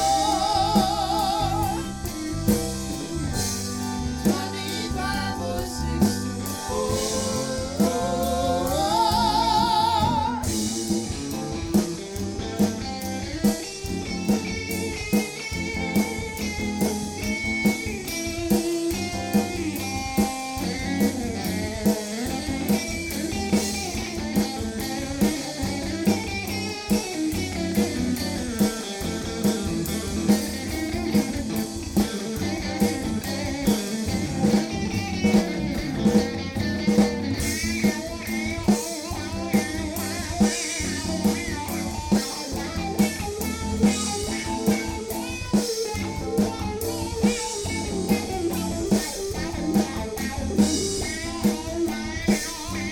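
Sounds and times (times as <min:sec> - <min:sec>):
low bass: 0:00.0 - 0:15.0, 0:27.4 - 0:45.4, 0:46.0 - 0:52.9
drum kit beat: 0:00.0 - 0:52.9
guitar lead: 0:00.0 - 0:52.9.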